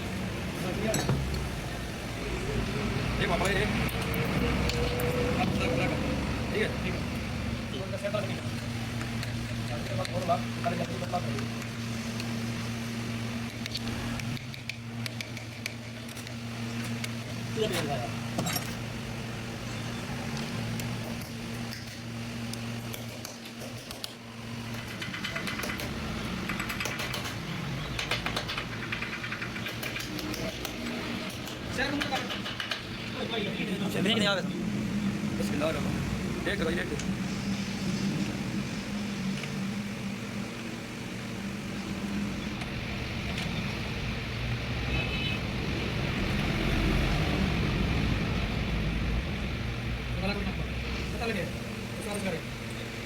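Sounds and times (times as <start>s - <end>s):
low mechanical hum: 0.0s - 53.0s
rapid irregular clicking: 13.4s - 17.4s, 20.3s - 33.5s.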